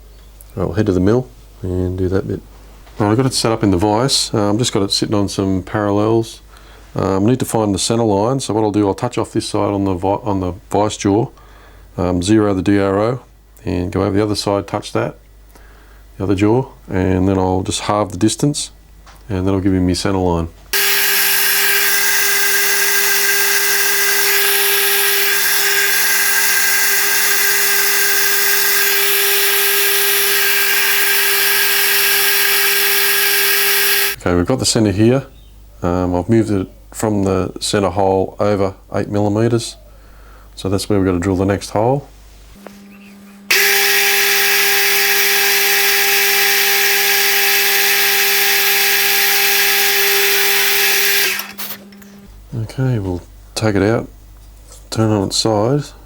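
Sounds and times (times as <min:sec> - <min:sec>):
milling machine spindle humming: 0:20.8 - 0:34.2, 0:42.6 - 0:52.4.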